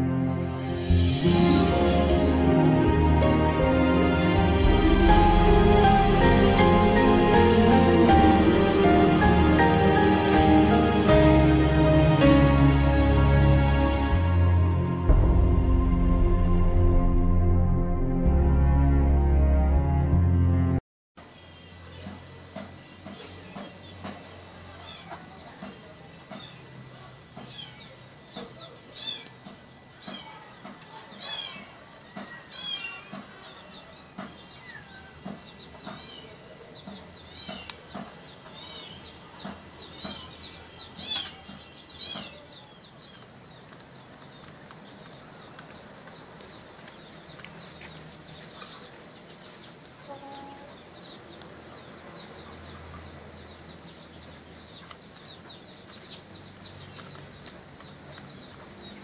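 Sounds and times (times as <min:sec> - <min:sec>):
birds chirping: 0:21.2 - 0:59.0.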